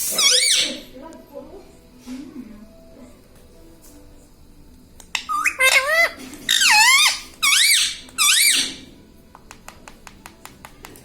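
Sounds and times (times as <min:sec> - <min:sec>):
parakeet calling: 0:00.1 - 0:00.8, 0:05.1 - 0:08.9.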